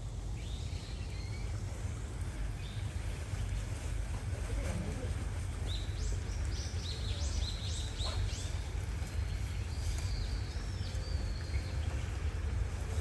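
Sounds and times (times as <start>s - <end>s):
steady low rumble: 0.0s - 13.0s
bird calling: 4.5s - 12.6s.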